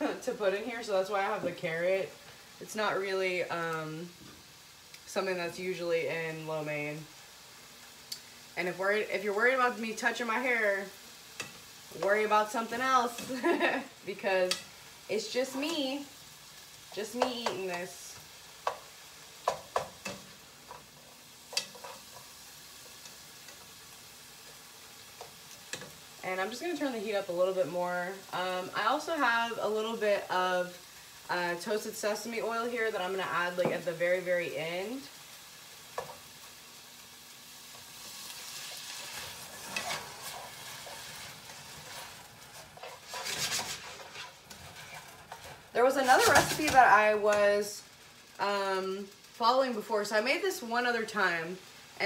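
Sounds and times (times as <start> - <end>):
beef and onion sizzling in pan: 0.0 - 52.0
tongs scraping a pan: 18.6 - 26.0, 37.7 - 47.0
tongs clicking against pan: 21.5 - 23.6.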